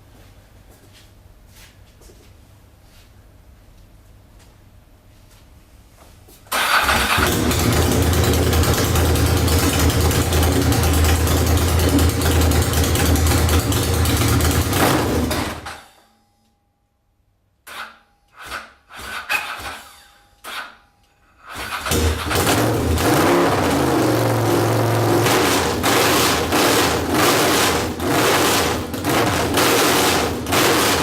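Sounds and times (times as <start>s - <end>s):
motorcycle engine running: 6.9s - 15.7s.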